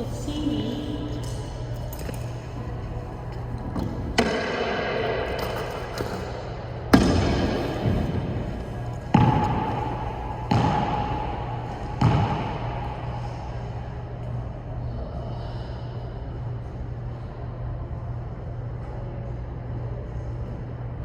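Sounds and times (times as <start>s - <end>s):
steady low hum: 0.0s - 21.0s
tennis ball hits with echo: 3.8s - 5.4s, 6.9s - 13.4s.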